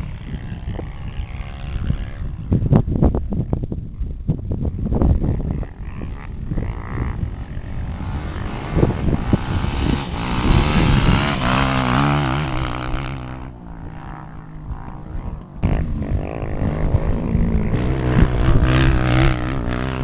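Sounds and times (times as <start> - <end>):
racing engine revving: 5.9 - 20.0.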